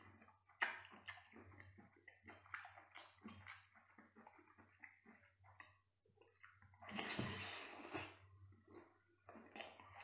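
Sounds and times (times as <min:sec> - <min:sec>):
wet smacking chewing clicks: 0:00.0 - 0:06.9.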